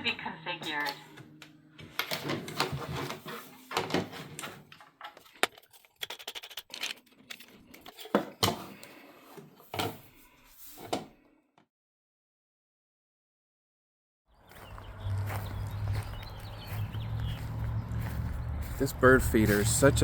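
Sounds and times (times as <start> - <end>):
hard objects knocking and clicking: 4.8 - 8.8.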